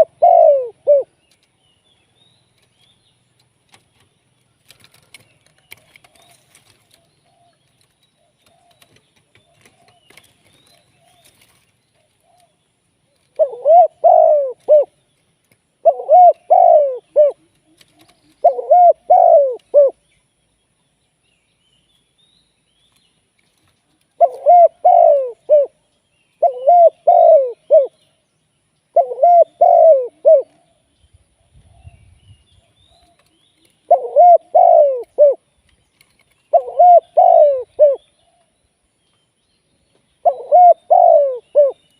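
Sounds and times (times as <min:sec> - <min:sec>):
dove cooing: 0:00.0 - 0:01.2, 0:13.2 - 0:15.0, 0:15.8 - 0:20.0, 0:24.1 - 0:25.8, 0:26.4 - 0:28.0, 0:28.9 - 0:30.8, 0:32.9 - 0:35.4, 0:36.5 - 0:38.4, 0:40.2 - 0:41.9.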